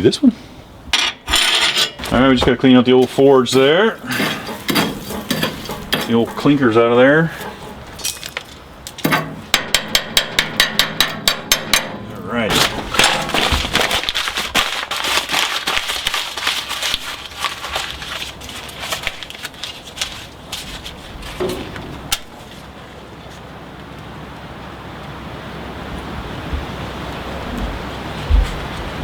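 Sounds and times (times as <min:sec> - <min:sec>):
clinkers scraping and knocking: 0:00.9 - 0:22.7.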